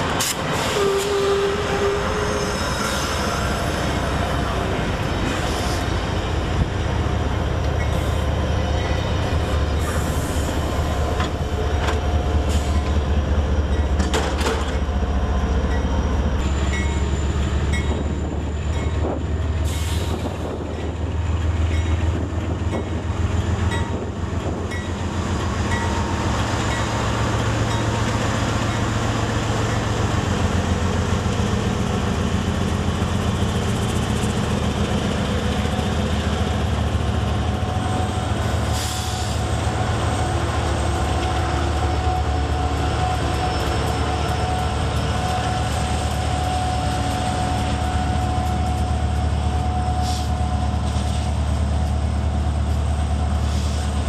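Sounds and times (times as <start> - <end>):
diesel locomotive engine drone: 0.0 - 54.0
train wheels squealing: 0.6 - 4.6, 7.7 - 11.0, 11.6 - 14.0, 14.7 - 20.9, 37.3 - 51.4.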